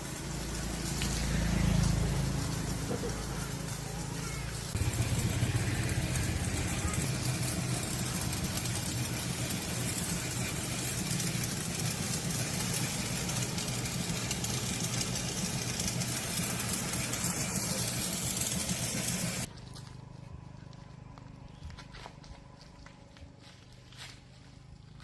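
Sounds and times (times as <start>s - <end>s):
car engine idling: 0.0s - 19.5s.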